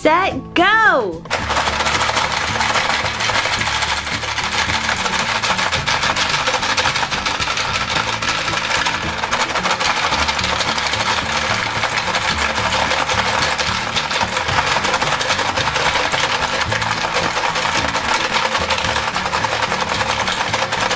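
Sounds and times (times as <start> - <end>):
background music: 0.0 - 20.9
gumballs rattling in plastic toy: 1.3 - 20.9.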